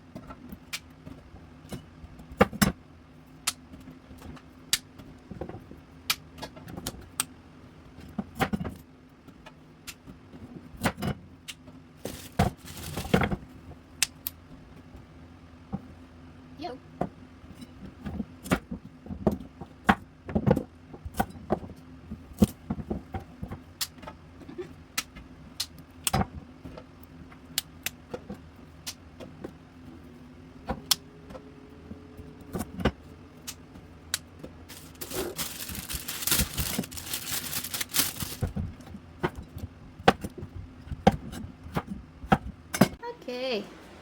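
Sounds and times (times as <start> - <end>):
rustling and sliding: 12.0 - 13.4, 34.7 - 38.7.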